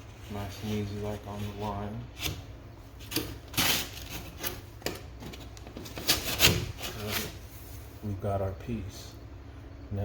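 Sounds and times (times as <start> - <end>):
utility knife cutting drywall: 5.9 - 7.4.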